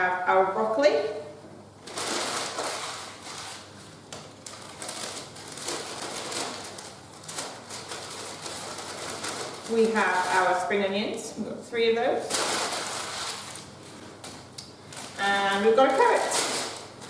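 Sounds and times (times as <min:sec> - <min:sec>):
packaging rustling: 0:01.8 - 0:10.7, 0:12.3 - 0:17.0.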